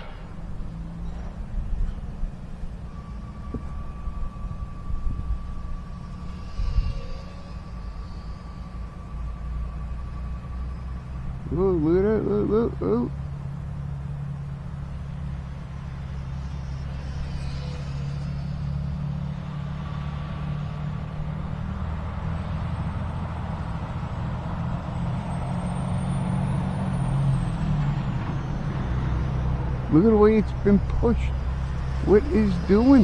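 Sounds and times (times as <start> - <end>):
wind rumble on microphone: 0.0 - 8.8
model plane motor whine: 1.5 - 12.2, 13.6 - 21.3.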